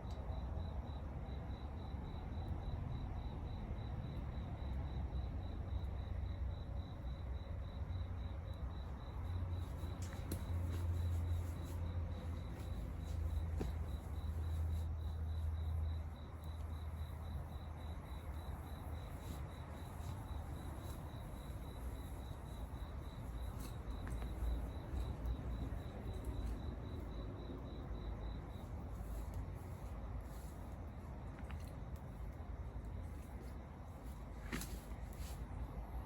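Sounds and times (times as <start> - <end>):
cricket chirping: 0.0 - 36.0.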